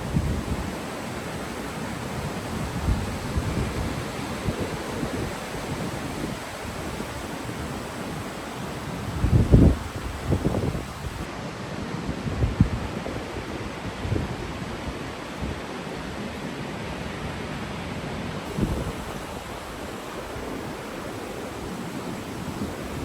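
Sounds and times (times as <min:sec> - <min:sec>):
wind buffeting microphone: 0:00.0 - 0:11.3, 0:18.5 - 0:23.0
fast-flowing stream: 0:00.0 - 0:11.4, 0:16.8 - 0:23.0.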